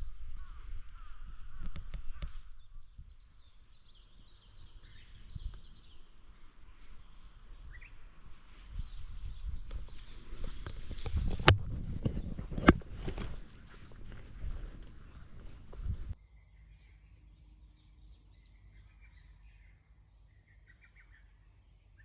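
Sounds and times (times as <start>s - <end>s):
rustles: 0.0s - 16.2s
small birds chirping: 0.0s - 22.0s
outdoor hiss: 3.3s - 9.2s.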